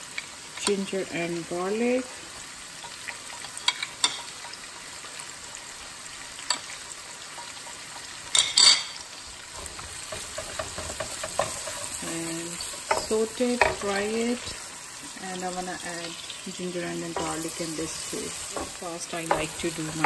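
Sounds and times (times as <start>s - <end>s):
onions sizzling in hot oil: 0.0s - 20.0s
spoon and spatula clicking on pan: 2.8s - 5.0s, 6.4s - 9.0s, 9.6s - 14.5s, 18.5s - 20.0s.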